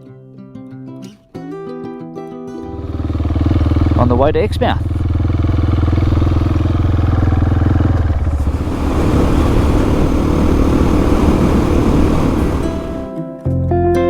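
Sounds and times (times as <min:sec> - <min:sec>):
motorcycle engine running: 0:02.7 - 0:13.1
rough noisy rush: 0:04.8 - 0:13.2.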